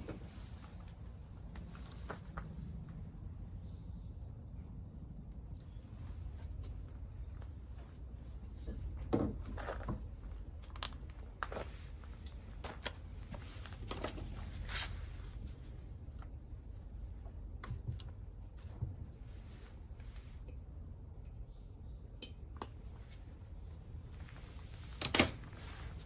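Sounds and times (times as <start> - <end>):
hand tools clicking and scraping: 25.0 - 26.0.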